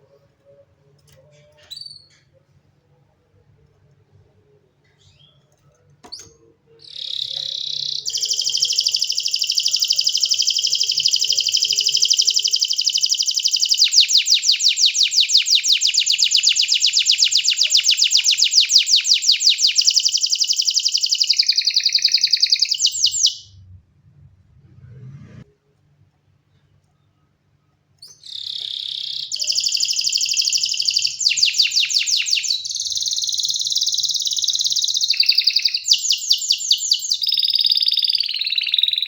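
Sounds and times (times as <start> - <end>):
canary singing trills: 5.0 - 23.6, 28.0 - 39.0.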